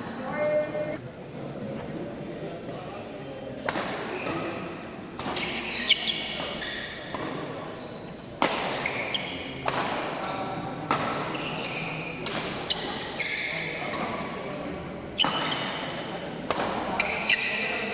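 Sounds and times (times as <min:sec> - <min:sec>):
racket striking shuttlecock: 0:03.6 - 0:07.6, 0:08.4 - 0:14.4, 0:15.2 - 0:17.9
shoes squeaking on court: 0:03.9 - 0:09.6, 0:10.2 - 0:14.4, 0:16.9 - 0:17.9.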